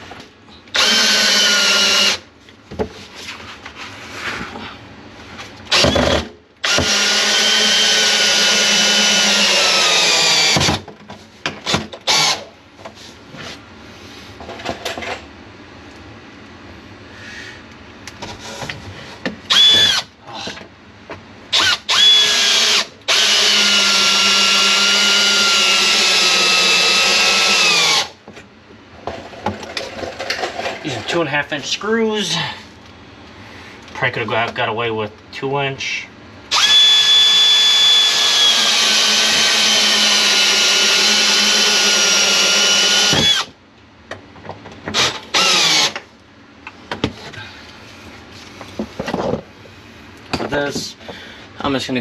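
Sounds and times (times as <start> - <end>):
power drill driving screws: 0.7 - 2.2, 5.7 - 10.8, 11.6 - 12.5, 19.5 - 20.1, 21.5 - 28.2, 36.5 - 43.6, 44.9 - 46.1.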